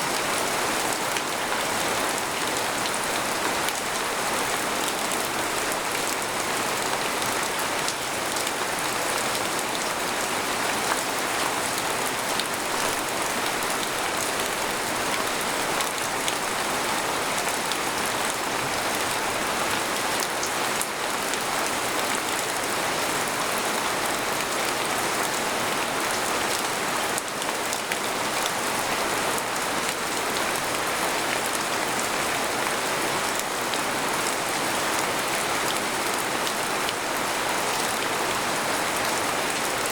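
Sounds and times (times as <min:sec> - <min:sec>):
rain falling on a tent: 0:00.0 - 0:39.9.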